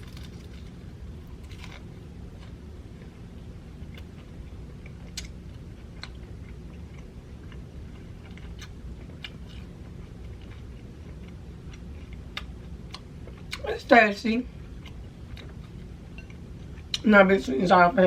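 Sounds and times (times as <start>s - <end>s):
crunchy chewing: 0.0s - 3.1s, 3.8s - 13.6s.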